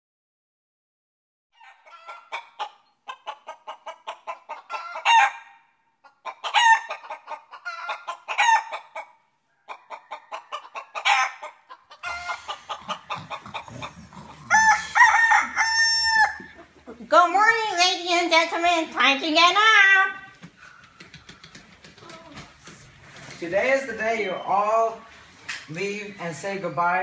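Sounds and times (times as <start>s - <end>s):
roosters crowing: 1.6s - 5.6s, 6.3s - 16.8s
chickens clucking: 1.6s - 17.2s, 20.2s - 25.7s.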